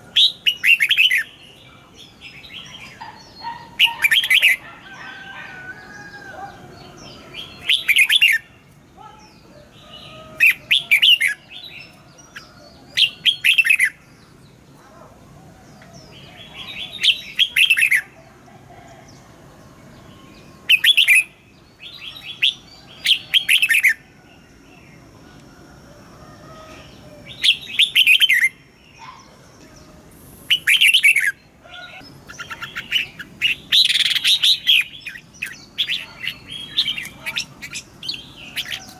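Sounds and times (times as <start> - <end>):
bird chirps: 5.8 - 14.6, 20.0 - 24.9, 26.5 - 38.9.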